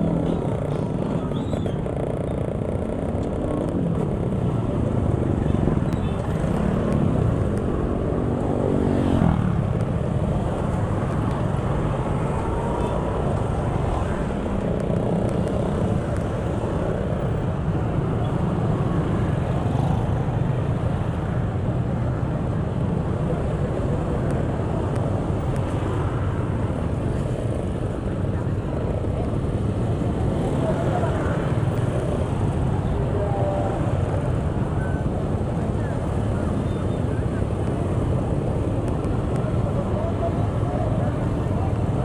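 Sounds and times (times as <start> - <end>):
vehicle engine and road noise: 0.0 - 42.0.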